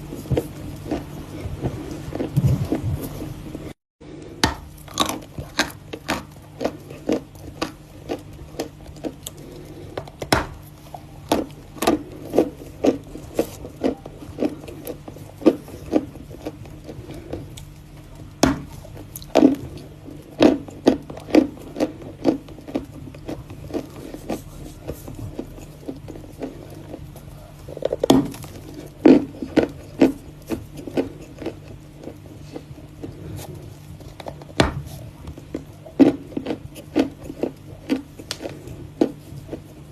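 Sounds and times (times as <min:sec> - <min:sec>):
chalk crunching while chewed: 0:00.0 - 0:39.9
faint steady hum: 0:00.0 - 0:39.9.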